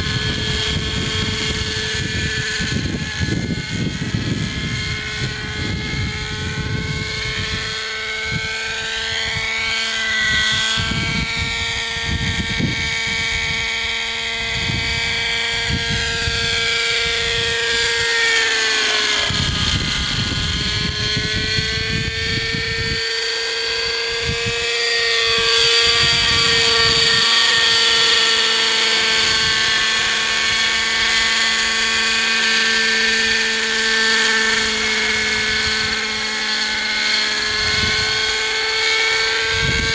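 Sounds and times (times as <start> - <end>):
model helicopter engine whine: 0.0 - 39.9.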